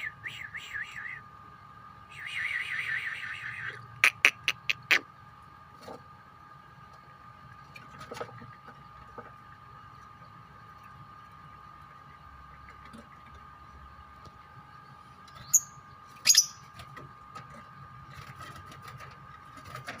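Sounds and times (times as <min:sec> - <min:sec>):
steady faint hum: 0:00.0 - 0:20.0
lovebirds shrill calls: 0:15.3 - 0:16.7.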